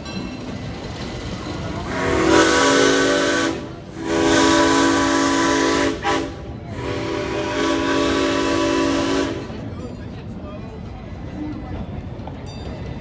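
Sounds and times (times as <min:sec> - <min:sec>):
train running: 0:00.0 - 0:13.0
steam locomotive whistle: 0:01.8 - 0:09.6.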